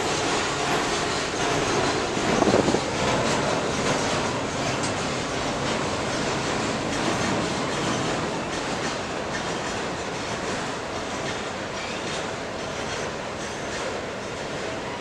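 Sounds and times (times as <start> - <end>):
train wheels rumbling on rails: 0.0 - 15.0
wheels clicking over rail joints: 0.2 - 14.7.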